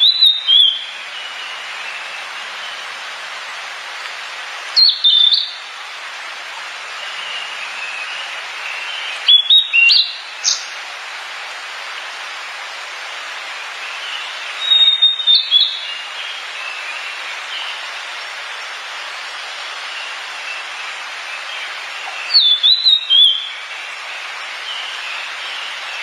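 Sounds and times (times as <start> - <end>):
songbird whistling: 0.0 - 0.9, 4.8 - 5.6, 9.2 - 10.7, 14.6 - 16.0, 22.1 - 23.6
steady background hiss: 0.0 - 26.0.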